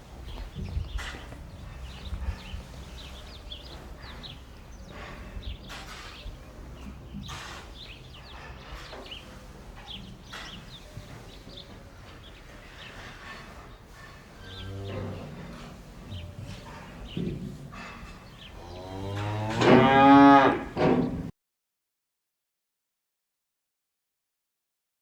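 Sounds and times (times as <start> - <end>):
small birds chirping: 0.0 - 19.2.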